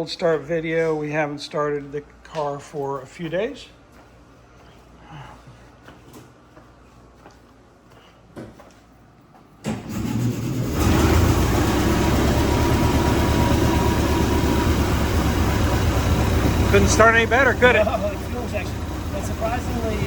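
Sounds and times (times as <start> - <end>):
car engine starting and running: 9.7 - 20.0.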